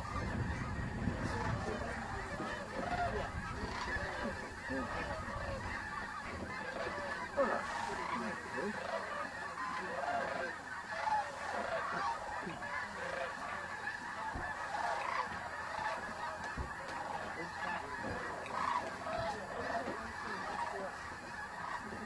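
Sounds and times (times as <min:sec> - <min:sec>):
flock of geese honking: 0:00.0 - 0:22.0.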